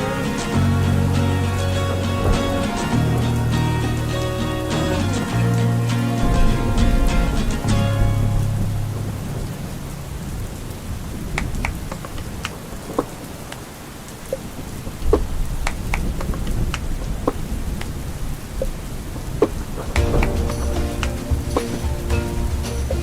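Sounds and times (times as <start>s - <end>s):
steady rain: 0.0s - 23.0s
raindrops tapping: 19.4s - 23.0s.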